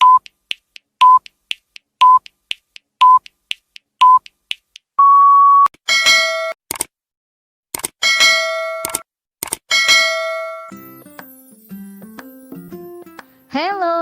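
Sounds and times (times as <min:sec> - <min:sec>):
electronic countdown beeps: 0:00.0 - 0:00.4, 0:01.0 - 0:01.4, 0:02.0 - 0:02.3, 0:03.0 - 0:03.3, 0:04.0 - 0:04.3, 0:05.0 - 0:05.7
quick ticks: 0:00.0 - 0:04.9.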